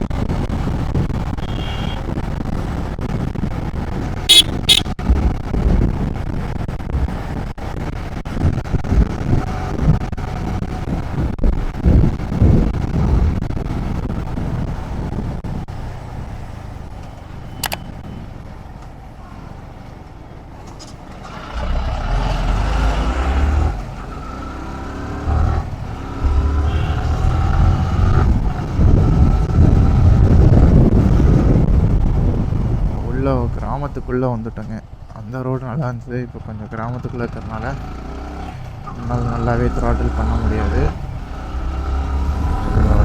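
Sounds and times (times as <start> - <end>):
wind on microphone: 0.0 - 16.4, 25.2 - 34.8, 40.8 - 43.0
motorcycle engine: 4.2 - 5.1, 24.5 - 30.0
sharp click: 17.6 - 17.8.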